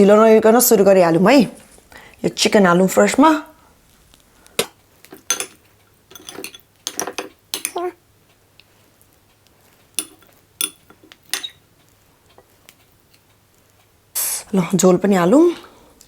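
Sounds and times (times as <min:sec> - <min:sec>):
cutlery scraping dishes: 0:04.6 - 0:08.0, 0:10.0 - 0:11.6.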